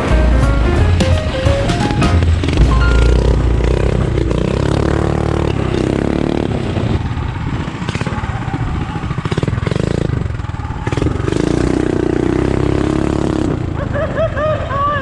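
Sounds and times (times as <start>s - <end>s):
mini bike engine revving: 3.2s - 15.0s.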